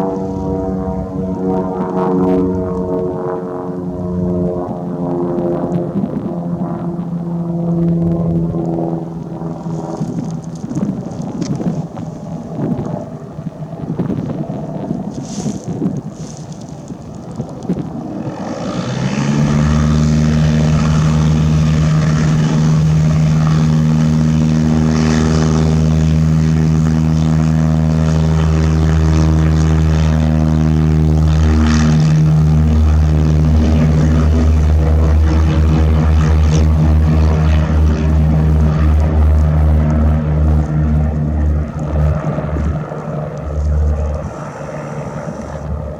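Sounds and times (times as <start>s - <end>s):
propeller airplane engine: 0.0s - 45.9s.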